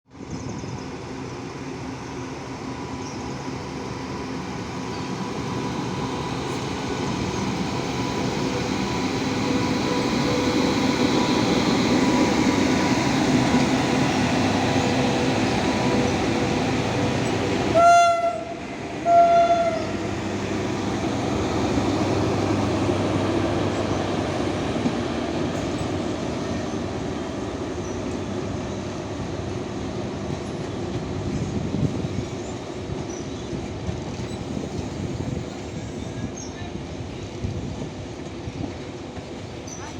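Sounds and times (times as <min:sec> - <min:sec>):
train rumbling: 0:00.1 - 0:39.9
train horn blasts: 0:17.7 - 0:20.0.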